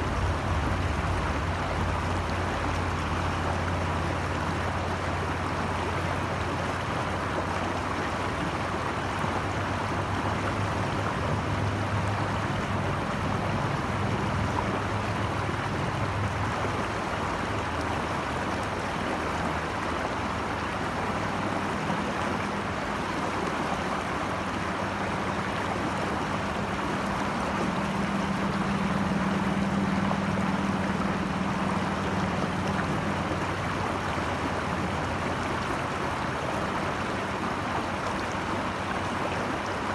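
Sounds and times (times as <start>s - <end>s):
flowing water rushing: 0.0s - 39.9s
low hum: 24.8s - 36.8s.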